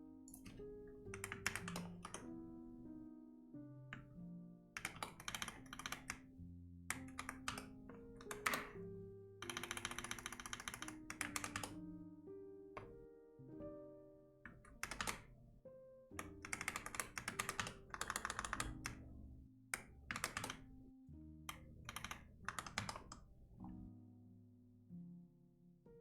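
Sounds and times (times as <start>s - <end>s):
soft background music: 0.0s - 26.0s
computer keyboard typing: 0.3s - 2.3s, 4.8s - 6.3s, 6.9s - 8.8s, 9.4s - 11.8s, 14.5s - 15.3s, 16.2s - 19.1s, 19.8s - 20.7s, 21.5s - 23.3s.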